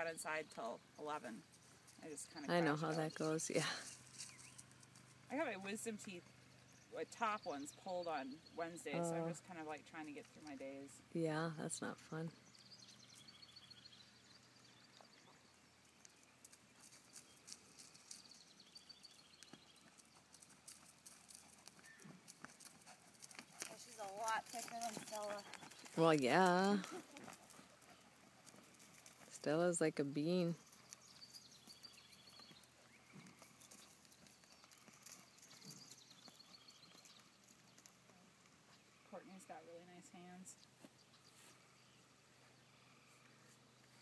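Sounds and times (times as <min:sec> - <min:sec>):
horse hoofbeats on soft ground: 0:14.7 - 0:29.6, 0:30.5 - 0:41.6.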